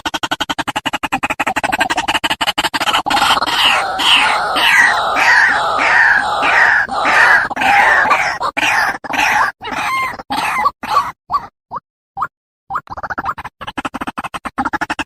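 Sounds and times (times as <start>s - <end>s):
waterhen calling harsh notes: 3.1s - 10.6s.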